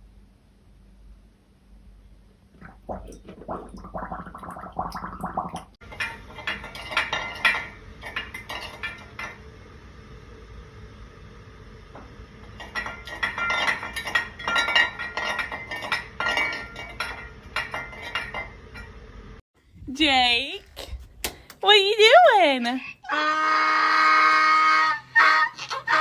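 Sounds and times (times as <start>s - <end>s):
hard objects clinking and clattering: 5.8s - 9.4s, 12.5s - 19.1s.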